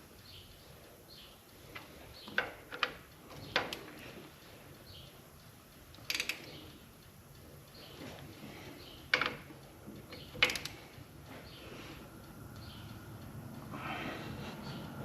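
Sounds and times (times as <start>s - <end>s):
ratchet metallic clicks: 4.8s - 8.1s, 8.8s - 11.4s.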